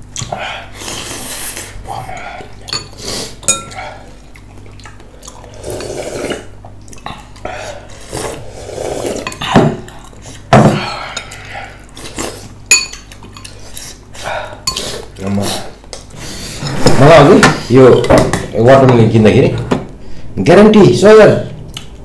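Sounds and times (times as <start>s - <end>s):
utensils clinking against dishes: 2.3s - 3.9s, 12.7s - 13.8s.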